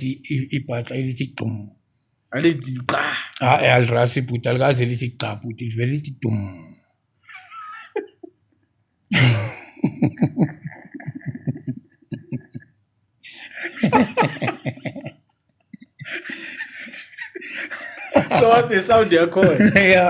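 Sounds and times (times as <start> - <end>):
men laughing: 7.3 - 8.3, 9.1 - 12.7, 13.3 - 15.2, 15.8 - 20.0.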